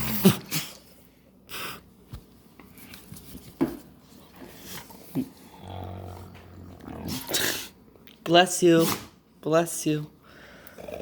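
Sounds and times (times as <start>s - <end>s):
puppy snoring and snorting: 5.1s - 7.8s, 10.7s - 11.0s.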